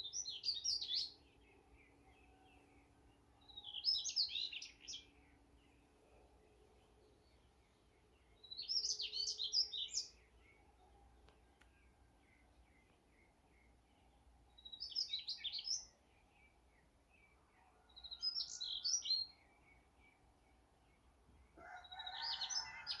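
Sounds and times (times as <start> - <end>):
songbird high chirping phrases: 0.0 - 2.5, 3.4 - 5.8, 7.0 - 10.7, 12.2 - 17.3.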